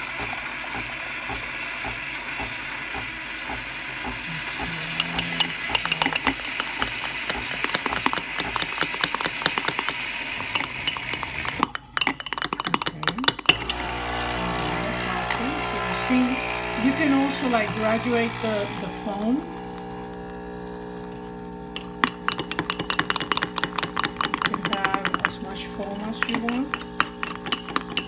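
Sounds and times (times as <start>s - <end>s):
coffee machine hissing: 0.0s - 12.0s, 12.8s - 28.0s
rapid clicking and rattling: 0.8s - 13.9s, 22.0s - 28.0s.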